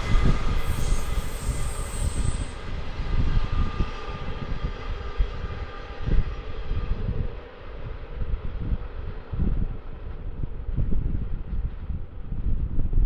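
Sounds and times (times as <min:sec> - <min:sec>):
wheels ringing on rails: 0:00.0 - 0:06.0
train rolling rumble: 0:00.0 - 0:13.0
wind buffeting microphone: 0:00.0 - 0:13.0.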